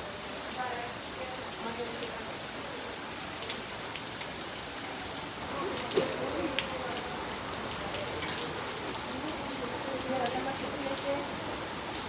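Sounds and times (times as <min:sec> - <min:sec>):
rain falling: 0:00.0 - 0:12.0
raindrops tapping close by: 0:03.4 - 0:12.0.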